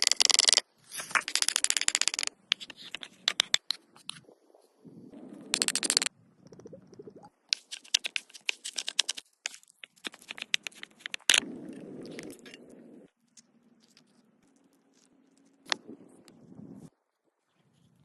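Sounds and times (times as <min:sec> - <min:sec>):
food crunching and scraping: 0:07.6 - 0:12.6.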